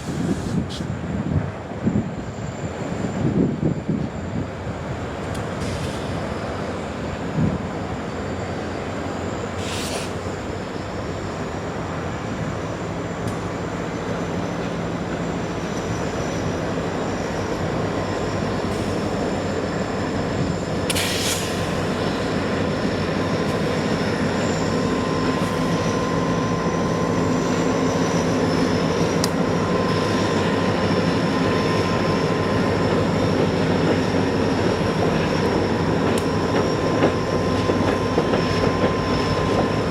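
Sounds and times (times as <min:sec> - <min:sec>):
train wheels rumbling on rails: 0:00.0 - 0:39.9
high wheel squeal: 0:12.4 - 0:39.9.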